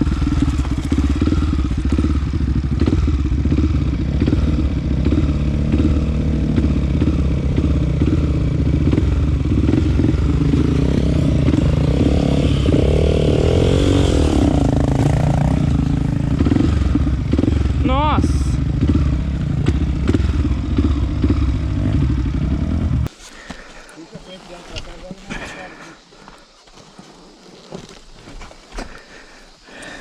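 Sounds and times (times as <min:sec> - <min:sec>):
motorcycle engine revving: 0:00.0 - 0:23.1.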